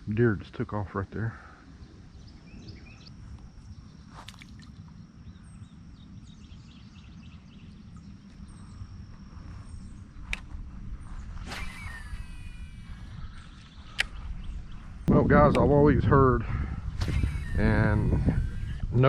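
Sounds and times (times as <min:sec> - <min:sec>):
faint bird chirps: 0:01.2 - 0:15.1, 0:16.8 - 0:19.0
wind rumbling on microphone: 0:01.6 - 0:19.0
sharp clicks: 0:13.4 - 0:14.2.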